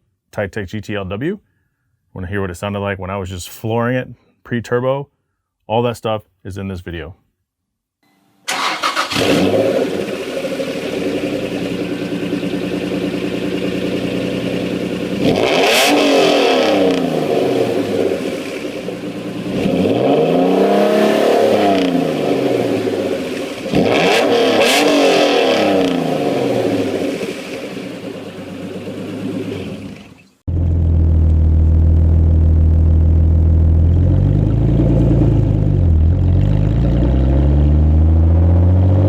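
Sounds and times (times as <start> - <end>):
car engine idling and revving: 8.5 - 39.0.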